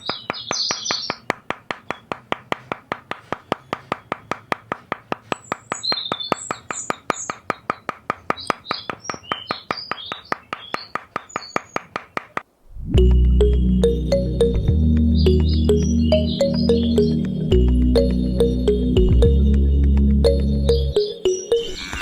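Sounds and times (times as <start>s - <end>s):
small birds chirping: 0.0s - 2.2s, 3.2s - 4.6s, 5.2s - 12.4s, 15.0s - 19.4s
rapid even clicking: 0.0s - 12.5s.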